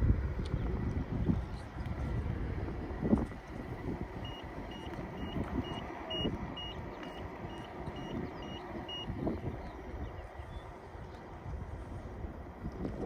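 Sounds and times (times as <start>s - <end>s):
wind rumble: 0.0s - 13.0s
short high beeps: 4.2s - 9.1s.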